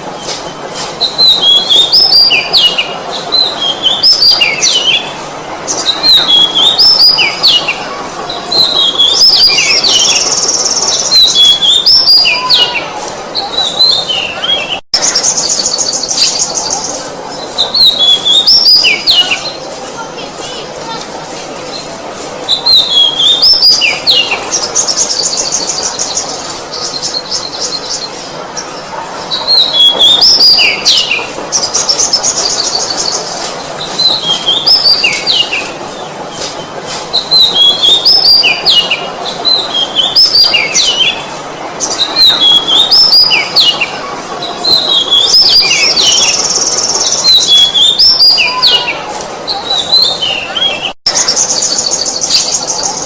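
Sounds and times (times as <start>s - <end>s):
bird singing whistled phrases: 1.0s - 5.1s, 5.7s - 7.7s, 17.6s - 19.6s, 22.5s - 28.0s, 41.9s - 43.9s.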